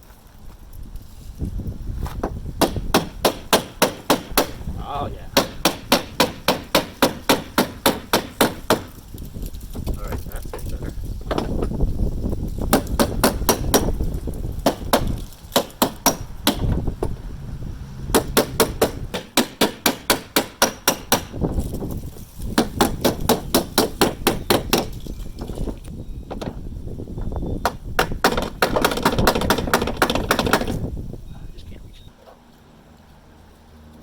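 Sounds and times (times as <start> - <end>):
hammer blows on sheet metal: 5.4 - 8.9, 18.1 - 21.4.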